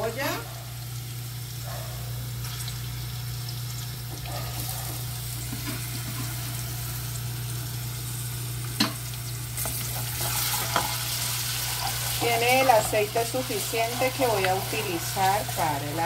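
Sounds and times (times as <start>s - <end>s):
garlic and onion sizzling in oil: 0.0s - 16.0s.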